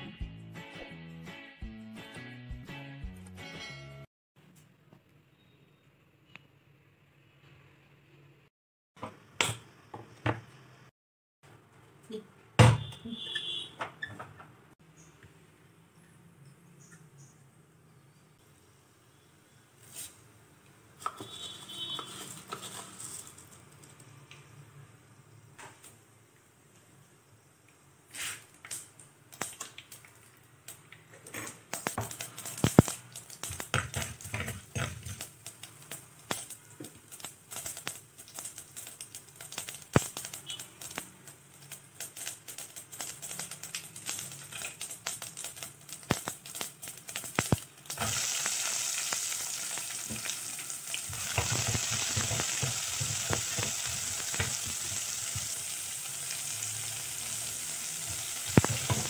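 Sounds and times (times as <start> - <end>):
shallots sizzling in oil: 21.0 - 23.8, 31.7 - 59.0
seasoning crackling in hot oil: 21.0 - 24.2, 28.1 - 31.0, 31.6 - 59.0.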